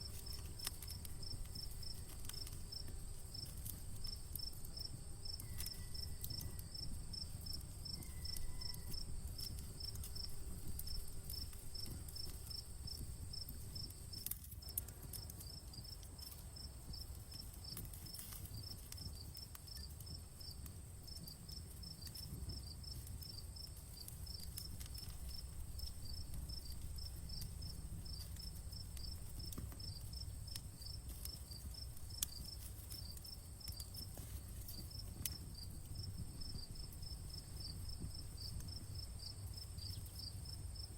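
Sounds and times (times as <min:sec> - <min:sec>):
campfire crackling: 0:00.0 - 0:40.9
crickets chirping: 0:00.0 - 0:40.9
high insect trill: 0:00.0 - 0:40.9.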